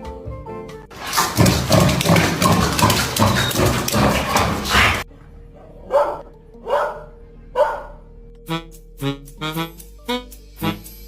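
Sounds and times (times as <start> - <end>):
dog growling: 1.4 - 8.1.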